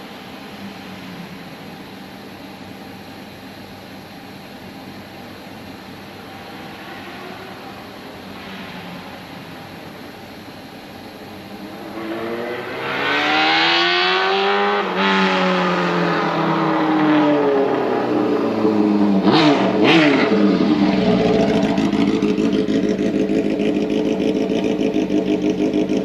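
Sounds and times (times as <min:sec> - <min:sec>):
motorcycle engine idling: 0:00.0 - 0:12.3, 0:19.8 - 0:26.0
motorcycle engine revving: 0:11.3 - 0:26.0.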